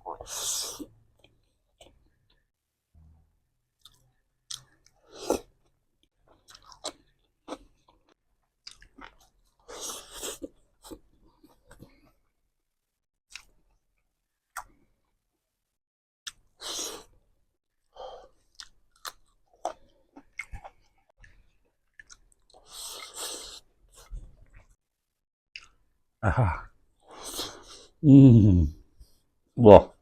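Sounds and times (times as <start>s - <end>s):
person chewing food: 3.8s - 5.5s, 6.3s - 12.2s, 18.2s - 24.8s, 25.6s - 25.8s.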